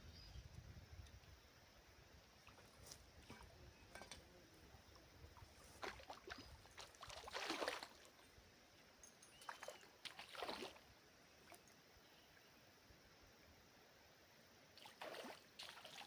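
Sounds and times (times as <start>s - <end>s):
water splashing and sloshing: 5.3s - 8.3s, 9.4s - 11.8s, 14.8s - 16.0s.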